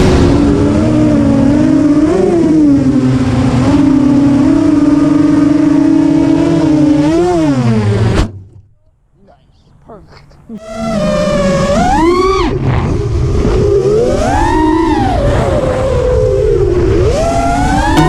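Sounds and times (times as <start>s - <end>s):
quadcopter motors whining: 10.6s - 18.0s.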